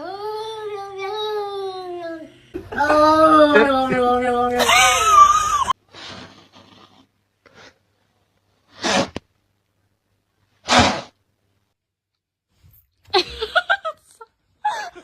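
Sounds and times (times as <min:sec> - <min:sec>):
person sneezing: 0:08.8 - 0:09.2.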